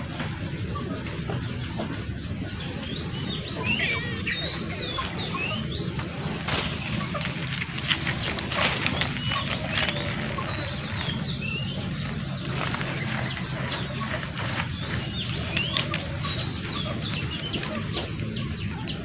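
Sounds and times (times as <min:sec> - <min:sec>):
birds chirping: 0:00.0 - 0:19.0
steady low rumble: 0:00.0 - 0:19.0
artificial flowers rustling: 0:06.0 - 0:17.8.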